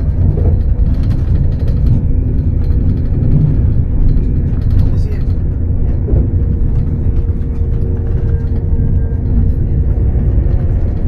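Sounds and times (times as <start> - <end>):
train rumble inside carriage: 0.0 - 11.0.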